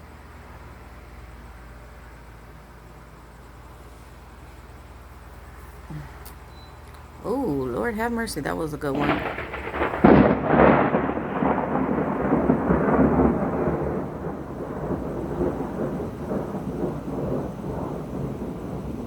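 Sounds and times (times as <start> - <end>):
thunderclap with rolling rumble: 7.6 - 19.0.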